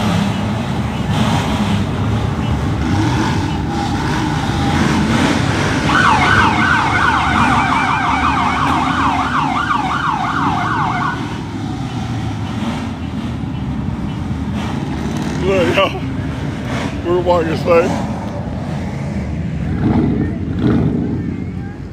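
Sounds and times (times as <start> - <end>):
low rumble of vehicle engines: 0.0 - 21.9
police siren yelping: 3.4 - 11.5.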